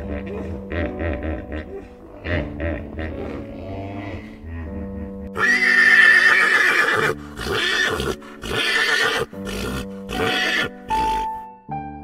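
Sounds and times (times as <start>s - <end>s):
background music: 0.0s - 12.0s
horse whinnying: 5.3s - 11.3s.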